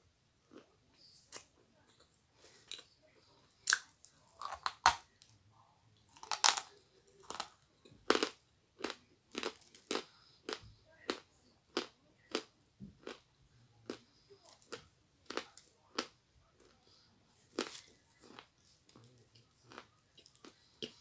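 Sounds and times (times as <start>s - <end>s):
crunchy chewing: 6.1s - 21.0s.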